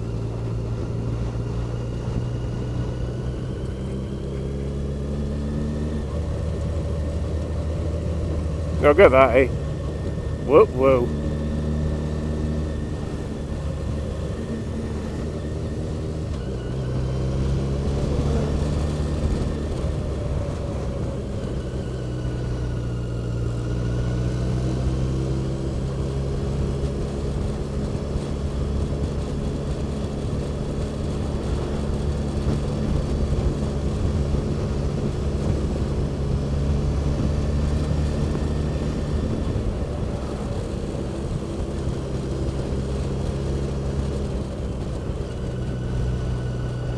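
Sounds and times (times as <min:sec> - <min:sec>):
vehicle engine at road speed: 0:00.0 - 0:46.9
wind rumble: 0:00.0 - 0:46.9.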